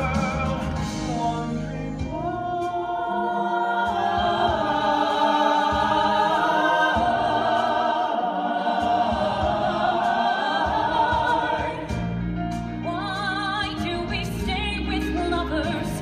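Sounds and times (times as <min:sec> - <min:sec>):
group singing in harmony: 0:00.0 - 0:12.7.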